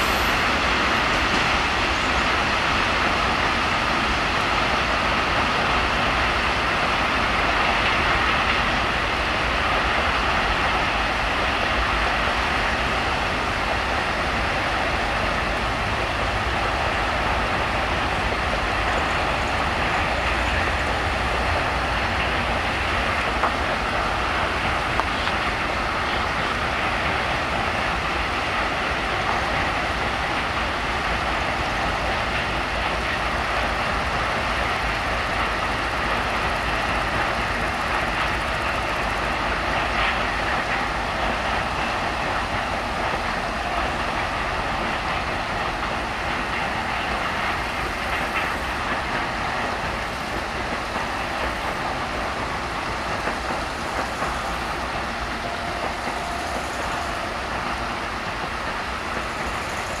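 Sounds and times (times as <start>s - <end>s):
freight train rumbling past: 0.0s - 60.0s.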